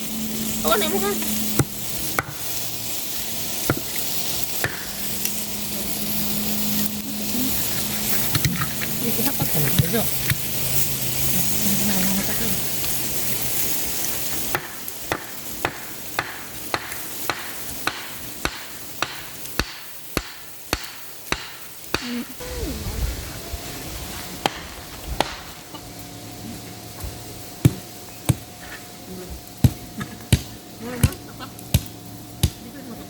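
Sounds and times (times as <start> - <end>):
axe chopping wood: 14.6 - 22.2, 31.8 - 32.6.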